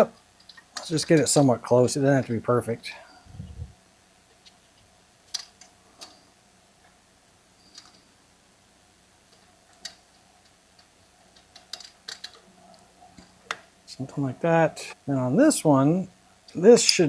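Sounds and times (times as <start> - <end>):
faint steady hum: 0.0 - 17.0
small parts clicking and tapping: 0.1 - 1.4, 5.3 - 6.2, 7.6 - 8.1, 9.3 - 13.7.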